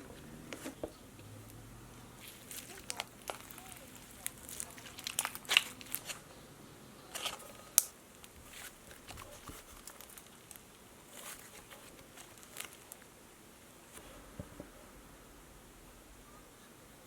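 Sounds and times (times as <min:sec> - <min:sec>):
slime and plastic containers handled: 0:02.2 - 0:06.3, 0:07.1 - 0:13.1.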